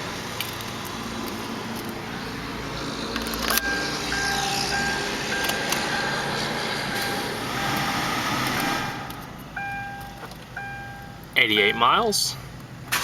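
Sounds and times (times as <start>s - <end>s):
car warning chime beeping: 3.5s - 7.9s, 9.5s - 12.3s.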